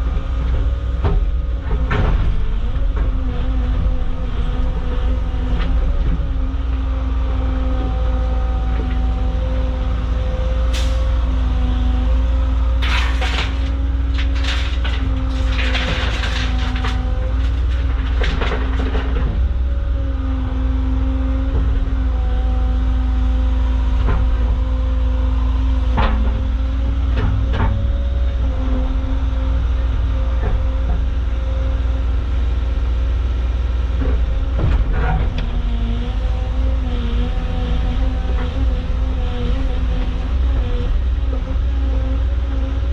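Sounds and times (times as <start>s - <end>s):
excavator diesel engine running: 0.0s - 42.9s
rocks clattering and scraping: 12.8s - 19.4s.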